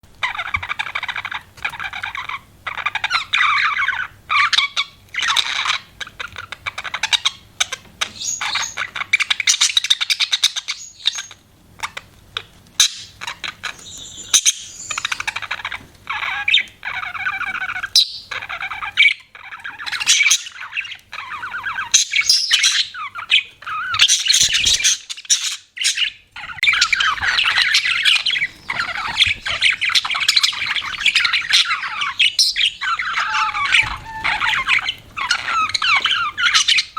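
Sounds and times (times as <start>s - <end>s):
budgerigars chirping and warbling: 0.2s - 36.9s.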